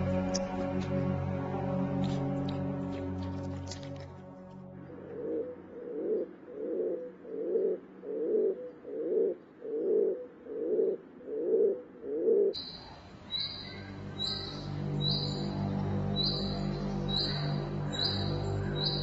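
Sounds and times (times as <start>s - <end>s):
pigeon cooing: 5.1s - 12.6s.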